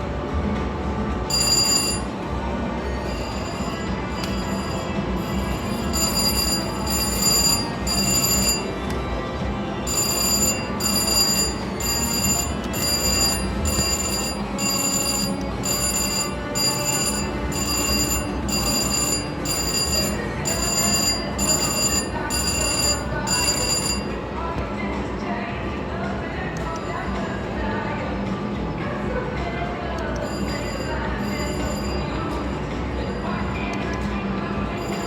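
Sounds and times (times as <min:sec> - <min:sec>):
casino background noise: 0:00.0 - 0:35.0
slot machine bell-like ringing: 0:01.2 - 0:24.4, 0:30.1 - 0:33.9, 0:34.7 - 0:35.0.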